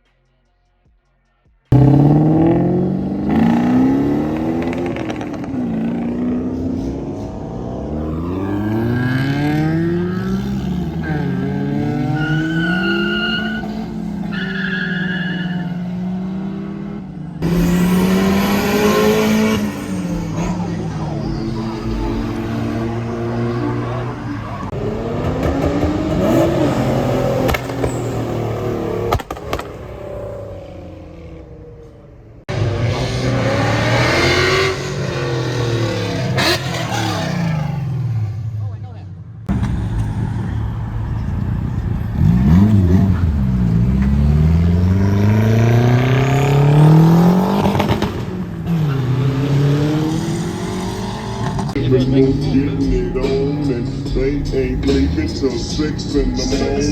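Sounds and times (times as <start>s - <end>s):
car engine revving: 1.7s - 38.8s, 39.4s - 56.9s
sharp exhaust pops: 27.4s - 28.3s, 29.1s - 29.9s.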